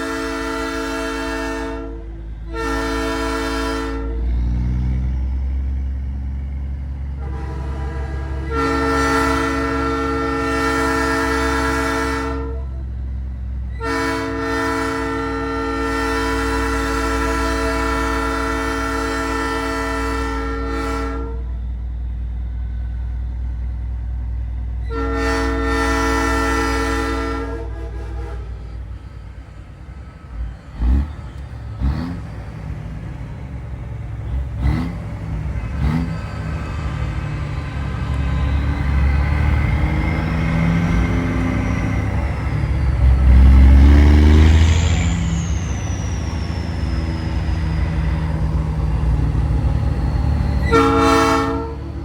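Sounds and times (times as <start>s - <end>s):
chime train horn blasts: 0.0s - 4.6s, 7.2s - 12.9s, 13.7s - 21.7s, 24.8s - 28.9s, 50.5s - 52.0s
low truck engine rumble: 0.0s - 52.0s.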